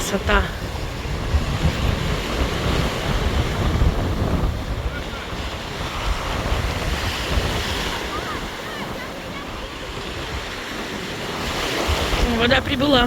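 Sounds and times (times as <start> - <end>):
sea surf breaking: 0.0 - 13.0
wind gusts buffeting microphone: 0.0 - 13.0.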